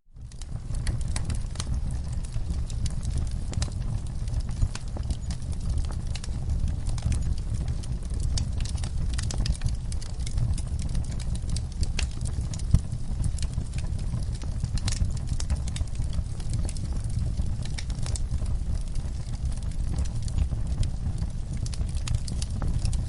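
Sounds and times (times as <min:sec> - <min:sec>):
low rumble of flames: 0:00.0 - 0:23.0
wood fire crackling and popping: 0:00.1 - 0:23.0.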